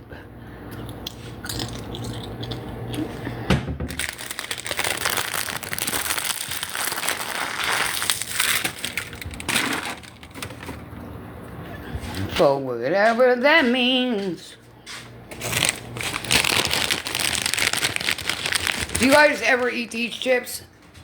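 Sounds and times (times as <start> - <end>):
chip bag crinkling: 1.4 - 3.2, 3.9 - 10.9, 15.3 - 20.5.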